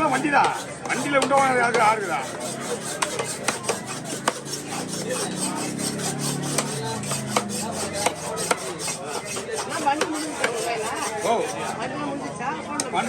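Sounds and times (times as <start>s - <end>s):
knife scraping fish scales: 0.0s - 11.8s
sharp knocks: 3.0s - 4.7s, 6.4s - 8.7s.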